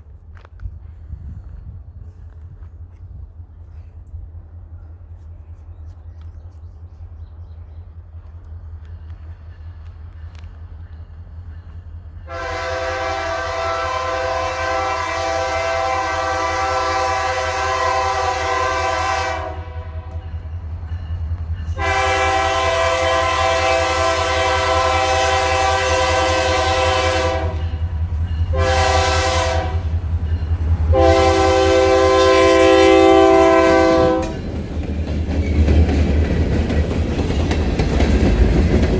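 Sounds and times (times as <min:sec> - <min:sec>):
locomotive engine rumble: 0:00.0 - 0:38.9
locomotive horn blasts: 0:12.3 - 0:20.2, 0:21.8 - 0:30.0, 0:30.8 - 0:34.4.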